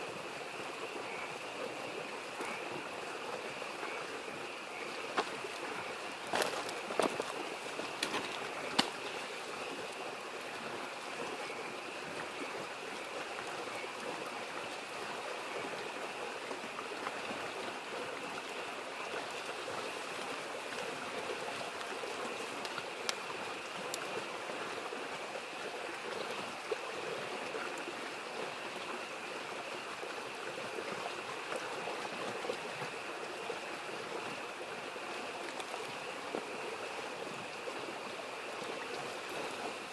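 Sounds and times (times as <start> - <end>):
frogs chorus: 0.0 - 39.9
stream babbling: 0.0 - 39.9
campfire popping: 4.9 - 10.1, 19.2 - 24.2.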